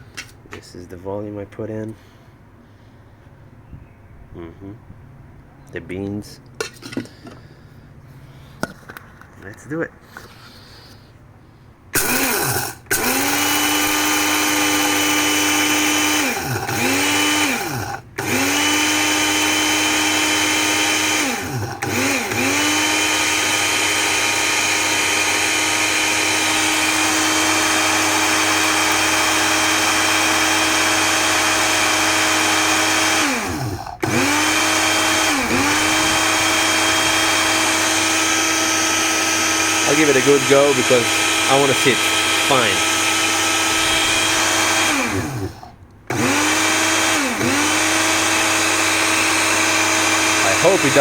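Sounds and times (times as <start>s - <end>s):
coffee grinder motor whining: 12.0s - 51.0s.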